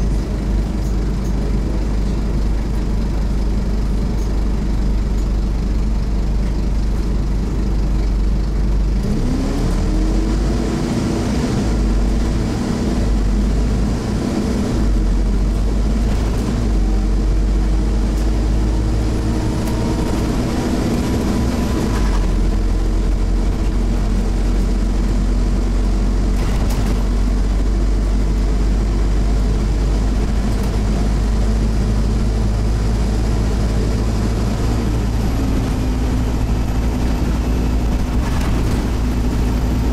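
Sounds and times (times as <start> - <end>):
bus diesel engine under load: 0.0 - 39.9.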